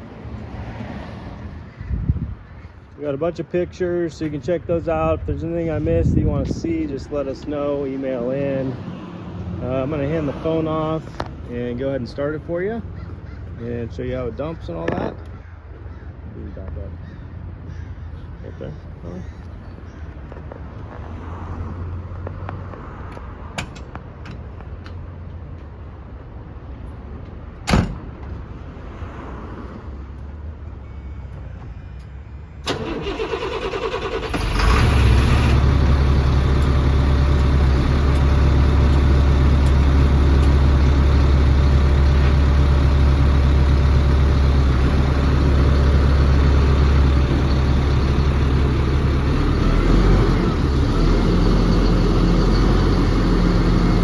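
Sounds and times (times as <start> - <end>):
diesel engine starting and idling: 32.6 - 54.0.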